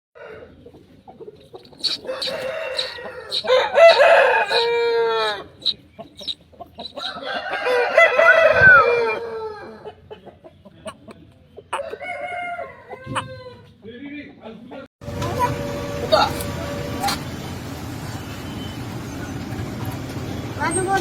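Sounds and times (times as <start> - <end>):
roosters crowing: 0.2 - 0.8, 1.4 - 10.0, 11.8 - 13.8
rooster clucks: 0.2 - 14.9.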